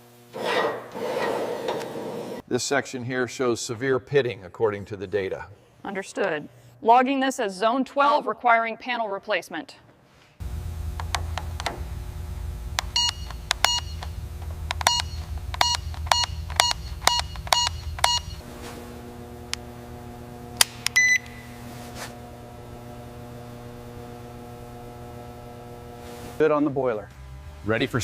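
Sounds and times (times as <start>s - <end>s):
electrical hum: 10.4s - 28.0s
short electronic beeps: 13.0s - 14.1s, 14.8s - 18.4s, 21.0s - 21.4s.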